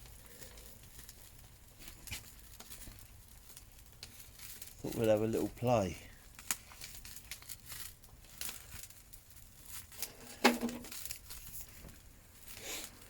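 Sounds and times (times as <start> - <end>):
crackles and rustles: 0.0 - 13.0.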